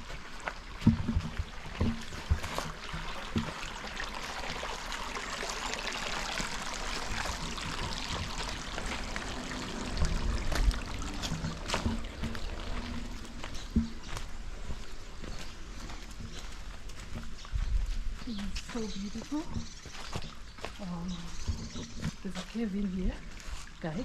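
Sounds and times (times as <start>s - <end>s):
water trickling: 0.0s - 24.0s
low rumble: 7.1s - 15.0s.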